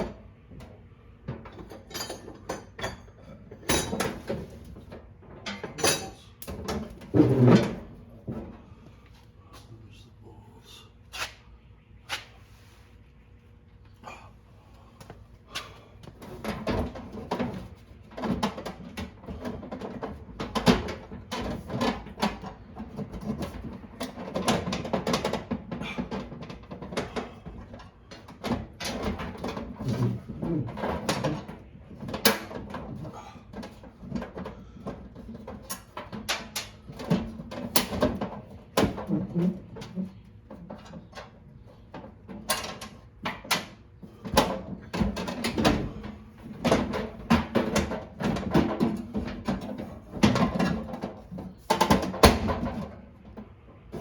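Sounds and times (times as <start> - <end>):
tools and parts clicking and rattling: 1.3 - 7.8, 16.2 - 39.2, 39.8 - 54.0.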